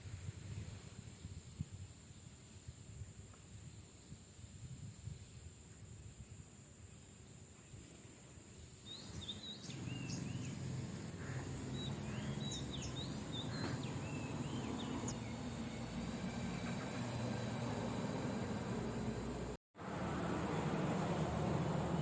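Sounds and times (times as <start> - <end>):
birds chirping: 8.6 - 19.6.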